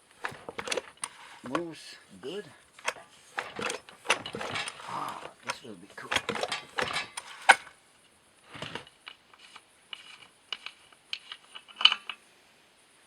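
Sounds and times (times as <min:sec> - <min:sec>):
chainsaw parts clicking and rattling: 0:00.0 - 0:07.8, 0:08.5 - 0:12.2.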